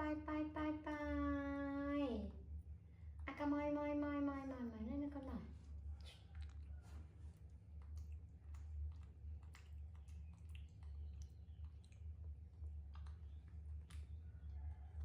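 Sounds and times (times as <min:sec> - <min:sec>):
steady low hum: 0:00.0 - 0:15.0
small clicks and ticks: 0:07.8 - 0:15.0.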